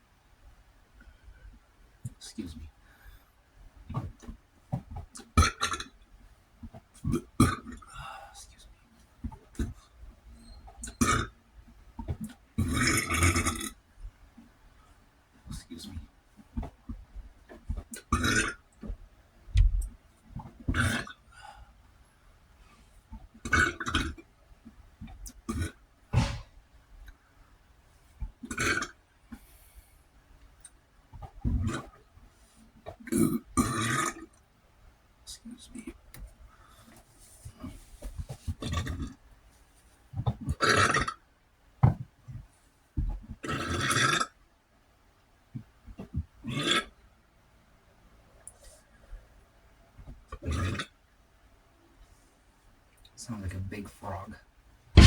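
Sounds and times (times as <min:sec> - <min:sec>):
gulping sounds: 0:05.1 - 0:06.0, 0:07.0 - 0:07.9, 0:10.8 - 0:11.4, 0:12.0 - 0:13.8, 0:17.6 - 0:18.9, 0:20.4 - 0:21.2, 0:23.4 - 0:24.2, 0:25.3 - 0:26.5, 0:28.4 - 0:29.0, 0:38.5 - 0:39.2, 0:40.3 - 0:41.2, 0:43.4 - 0:44.3, 0:50.4 - 0:50.9
person burping: 0:18.0 - 0:18.6, 0:25.5 - 0:26.5.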